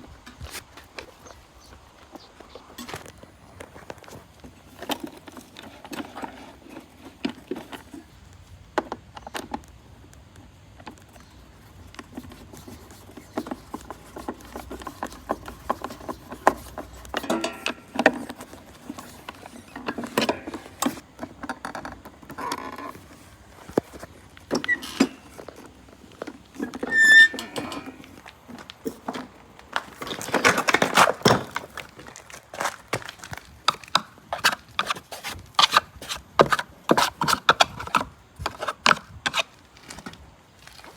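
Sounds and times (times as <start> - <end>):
parts rattling: 13.4 - 35.0
high squeak: 24.6 - 25.3, 26.7 - 28.0.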